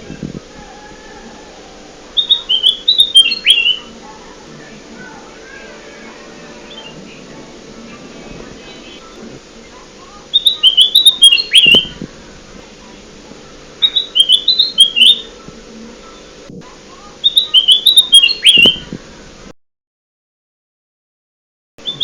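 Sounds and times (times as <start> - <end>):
faint steady hum: 0.0 - 19.5
bird chirpy whistled song: 2.2 - 3.9, 10.3 - 12.0, 13.8 - 15.3, 17.2 - 18.9.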